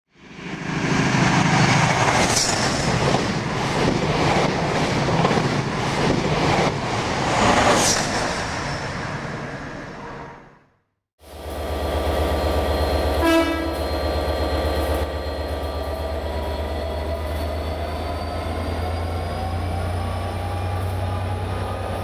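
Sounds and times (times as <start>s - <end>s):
train running on track: 0.1s - 10.5s, 11.2s - 22.0s
rail clicks: 1.1s - 8.7s.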